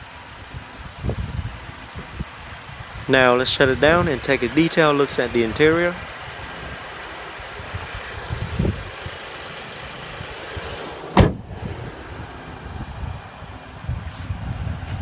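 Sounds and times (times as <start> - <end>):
car hood slamming shut: 11.2 - 11.4.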